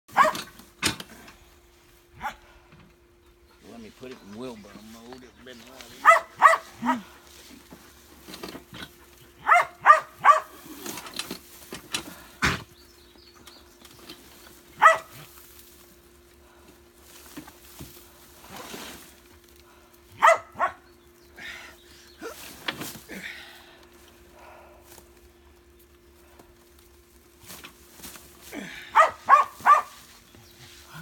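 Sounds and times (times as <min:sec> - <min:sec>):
small dog yapping: 0:00.1 - 0:00.5, 0:06.0 - 0:07.0, 0:09.4 - 0:10.6, 0:14.8 - 0:15.2, 0:20.2 - 0:20.8, 0:28.9 - 0:30.0
faint steady hum: 0:00.1 - 0:31.0.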